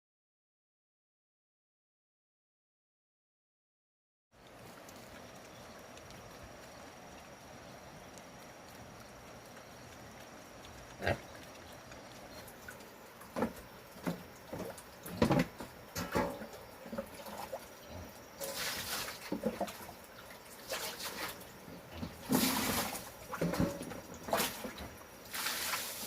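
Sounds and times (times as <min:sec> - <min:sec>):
pigs grunting: 0:09.8 - 0:15.6.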